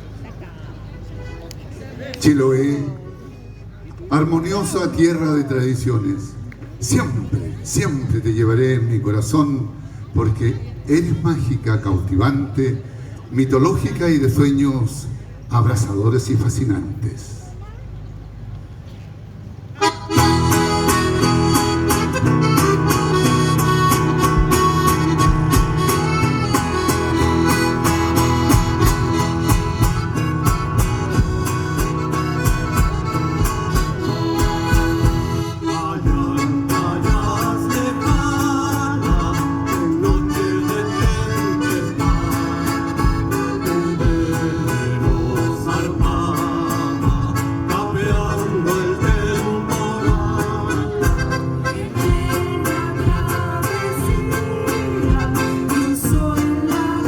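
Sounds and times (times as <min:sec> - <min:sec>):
accordion-like melody: 0:19.8 - 0:57.0
strummed guitar: 0:19.8 - 0:57.0.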